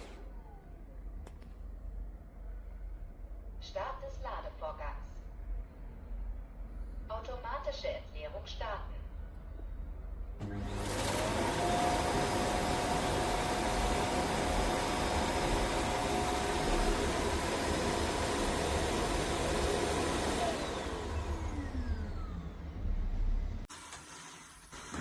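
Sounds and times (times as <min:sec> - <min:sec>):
suction motor whining: 0:10.4 - 0:22.6.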